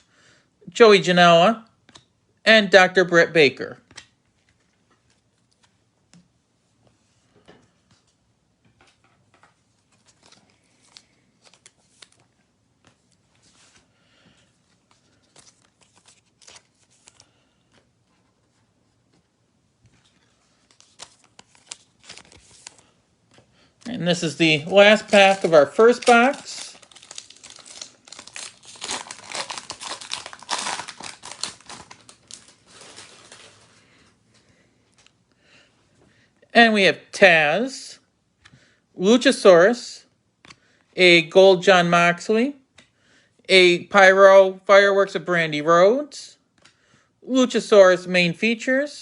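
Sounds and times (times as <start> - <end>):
cards being shuffled: 3.8 - 6.2, 7.8 - 13.9, 14.7 - 33.8
foil wrapper crinkling: 20.5 - 23.0, 24.2 - 34.0.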